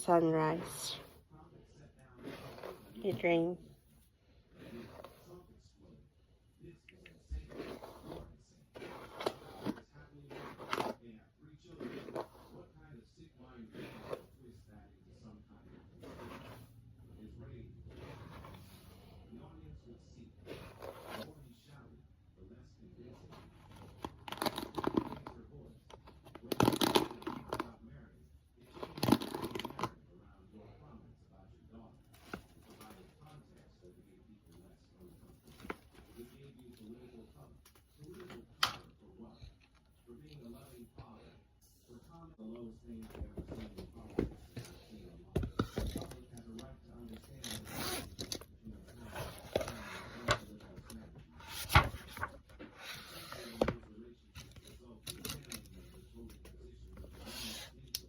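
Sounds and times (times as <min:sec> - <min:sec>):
crinkling and rustling: 0:41.9 - 0:56.4.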